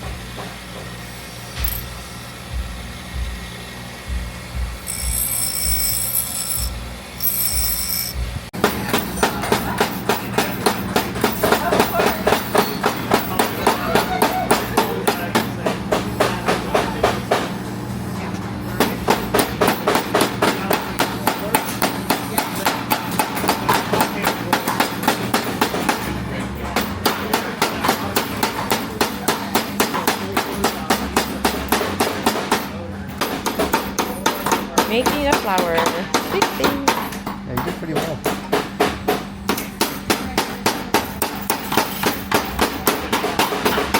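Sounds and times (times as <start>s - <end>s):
music with fast percussive beat: 1.6s - 17.5s.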